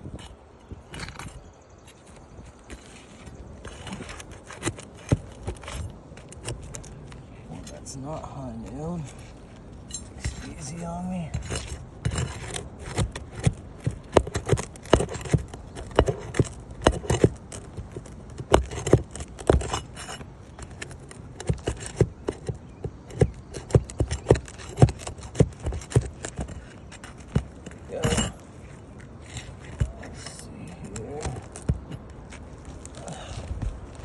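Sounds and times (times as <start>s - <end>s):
tool scraping on shingles: 0.0s - 34.0s
metal tool knocking on shingles: 11.3s - 28.4s.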